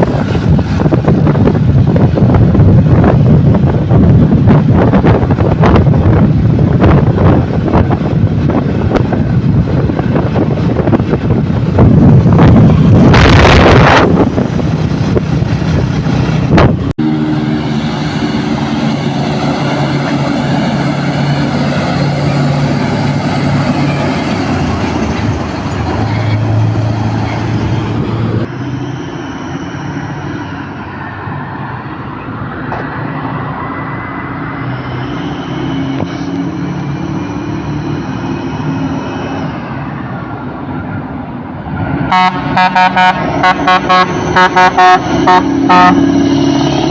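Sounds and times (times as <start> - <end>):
truck engine running: 0.0 - 28.9
wind noise on microphone: 0.0 - 46.9.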